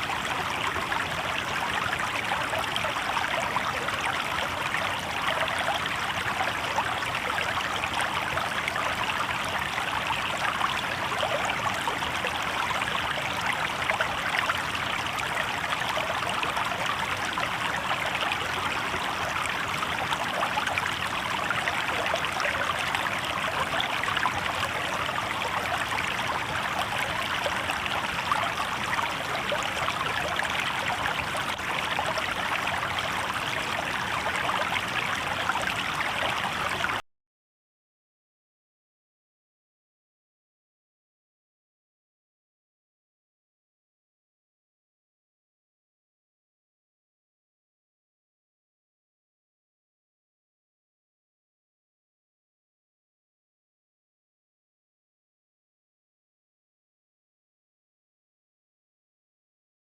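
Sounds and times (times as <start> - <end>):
river babbling over rocks: 0.0 - 37.0.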